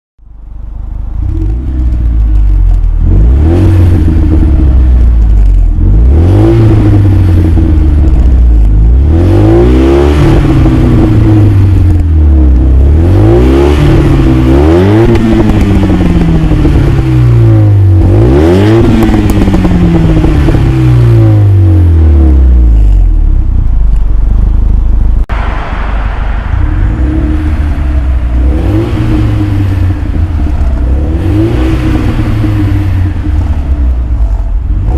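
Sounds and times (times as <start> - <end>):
car engine revving: 0.2 - 34.9.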